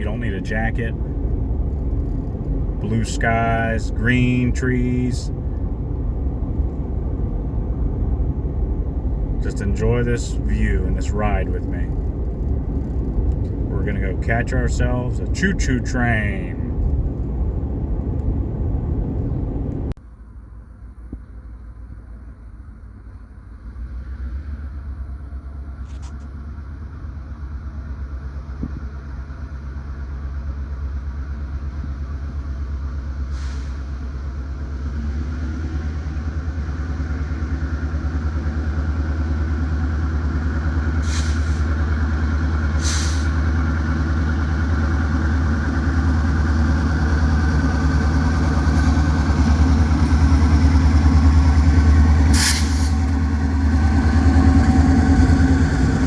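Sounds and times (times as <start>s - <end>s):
low vehicle rumble: 0.0s - 56.0s.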